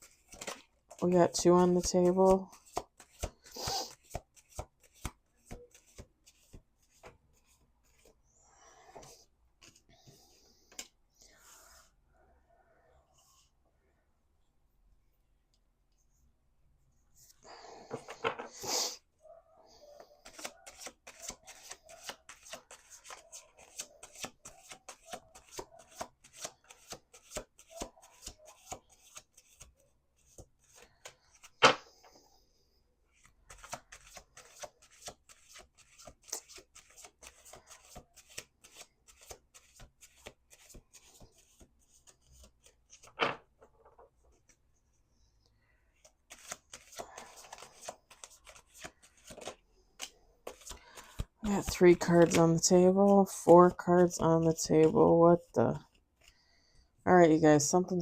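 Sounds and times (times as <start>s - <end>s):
cards shuffling: 0.0s - 8.1s, 9.0s - 9.9s, 20.2s - 31.9s, 33.1s - 43.4s, 46.0s - 54.7s.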